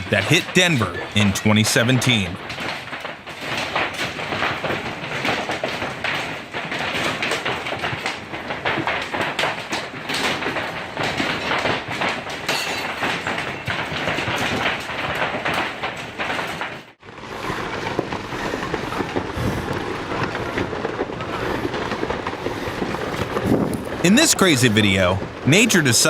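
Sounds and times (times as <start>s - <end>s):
hailstones rattling on hard surfaces: 0.0s - 26.0s
heavy low rattling noise: 17.0s - 26.0s.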